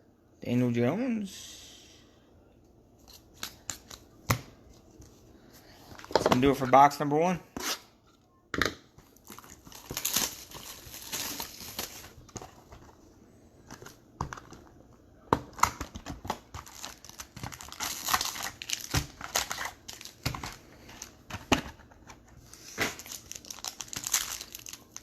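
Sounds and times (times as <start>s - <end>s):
plastic packaging crinkling and tearing: 9.0s - 12.9s, 15.5s - 25.0s.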